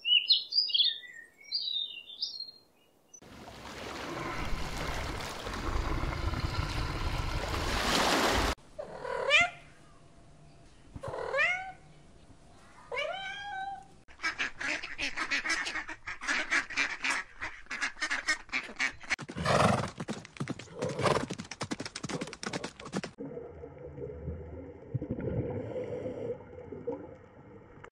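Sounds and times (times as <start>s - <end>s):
rushing stream water: 3.2s - 8.6s
ducks quacking: 14.1s - 19.2s.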